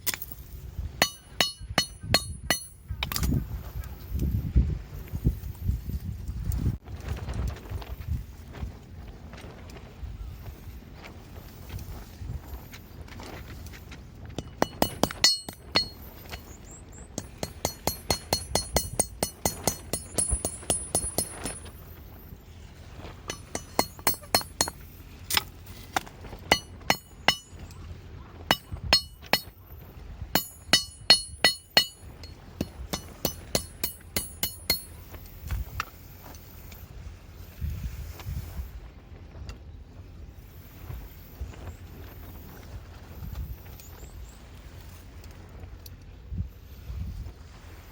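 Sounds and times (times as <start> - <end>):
hammer ringing on metal: 1.0 - 2.8, 14.4 - 16.0, 17.2 - 21.6, 23.3 - 24.8, 26.5 - 27.6, 28.5 - 29.5, 30.4 - 34.9.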